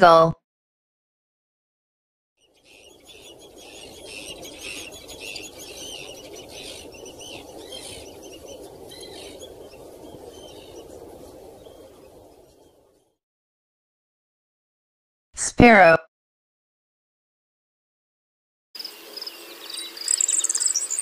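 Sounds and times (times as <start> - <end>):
birds chirping: 2.4 - 13.2, 18.8 - 21.0.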